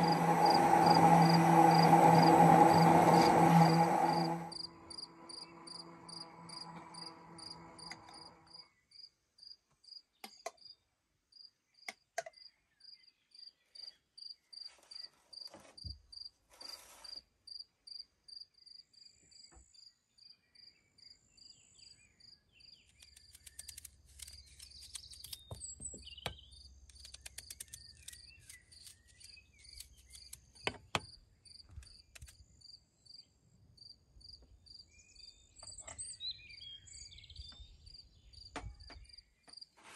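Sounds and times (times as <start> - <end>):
low pitched hum: 0.0 - 8.6.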